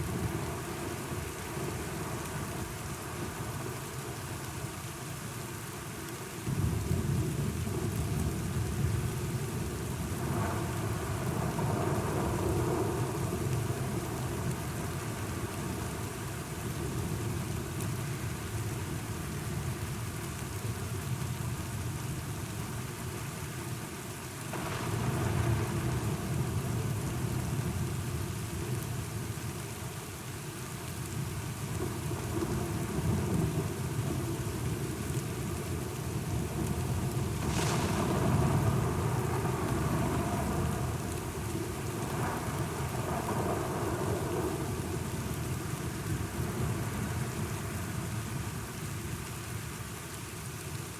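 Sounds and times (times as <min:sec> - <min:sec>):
steady rain: 0:00.0 - 0:50.9
rolling thunder: 0:36.5 - 0:45.2.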